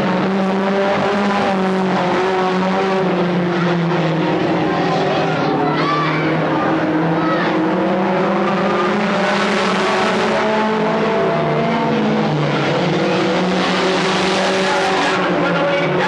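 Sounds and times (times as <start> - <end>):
stock car engines racing: 0.0 - 16.0.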